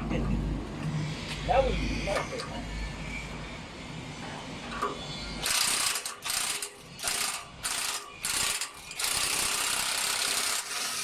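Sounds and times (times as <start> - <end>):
power tool rattling and hissing: 5.4 - 11.0.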